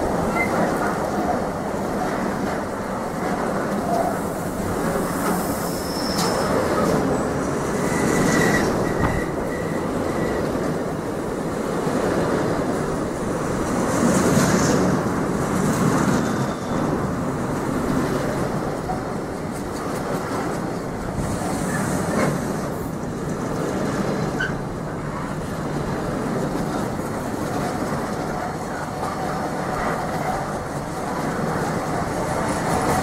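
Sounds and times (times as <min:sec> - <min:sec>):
train rumbling on rails: 0:00.0 - 0:33.0
high wheel squeal: 0:05.0 - 0:10.6, 0:16.0 - 0:17.1.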